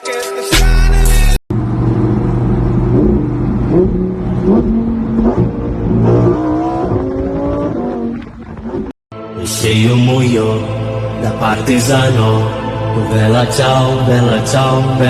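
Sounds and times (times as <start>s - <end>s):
car engine revving: 1.6s - 8.9s.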